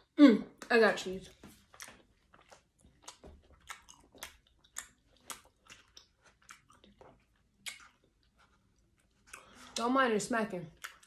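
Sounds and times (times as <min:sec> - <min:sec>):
wet lip smacking while chewing: 0:01.5 - 0:09.8.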